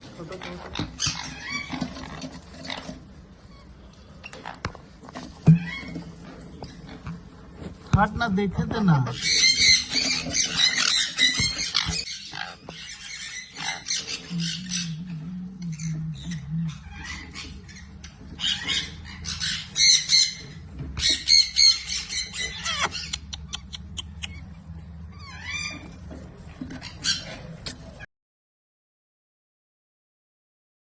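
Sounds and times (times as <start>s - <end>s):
parrots squawking: 0.2s - 4.7s, 9.1s - 26.1s, 26.7s - 28.0s.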